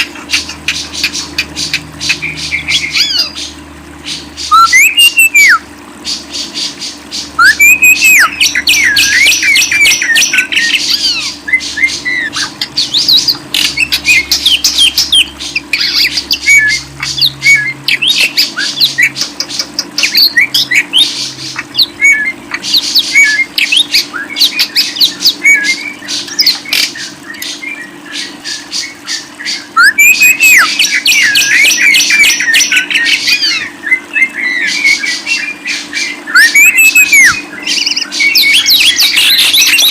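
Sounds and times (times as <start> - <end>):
caged birds chattering and squawking: 0.0 - 39.9
faint steady hum: 0.0 - 39.9.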